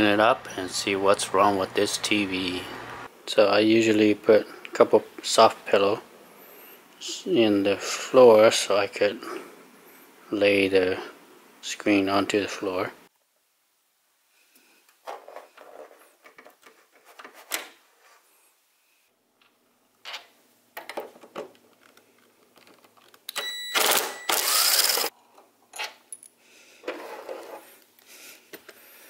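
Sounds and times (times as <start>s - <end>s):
rustling and clatter: 15.0s - 18.2s.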